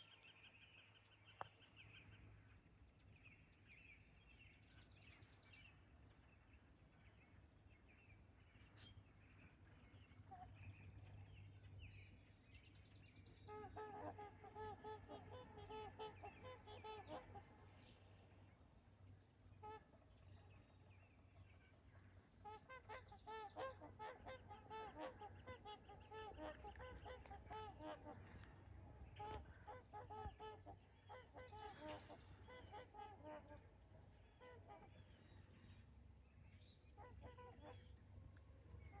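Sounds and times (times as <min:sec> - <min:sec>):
swans honking: 0:22.5 - 0:35.3.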